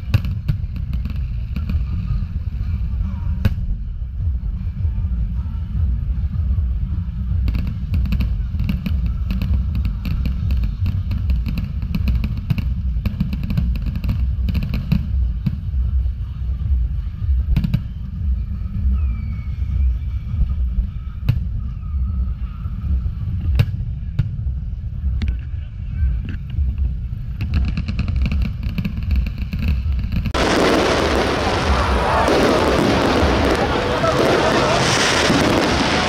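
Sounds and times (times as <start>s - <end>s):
low rumble: 0.0s - 36.0s
fireworks cracking: 7.4s - 16.1s, 27.3s - 36.0s
fireworks bangs: 27.4s - 36.0s.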